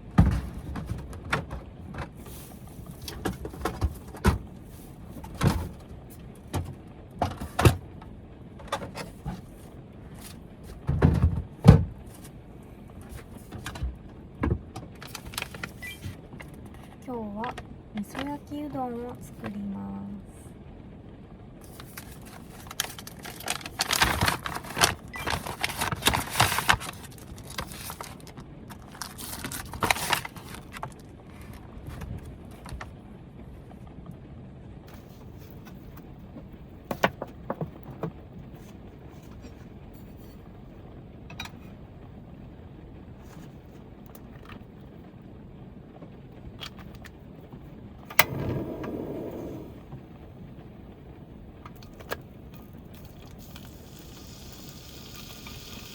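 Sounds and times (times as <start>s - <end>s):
packaging rustling: 21.7s - 31.6s
steady hiss: 53.0s - 55.9s.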